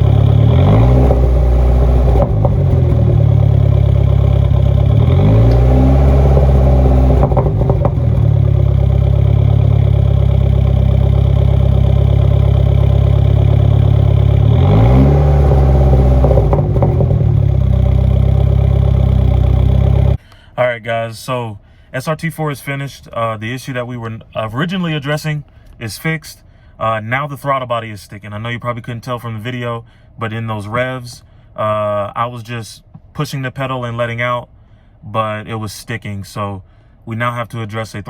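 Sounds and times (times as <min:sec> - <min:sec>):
car engine revving: 0:00.0 - 0:20.2.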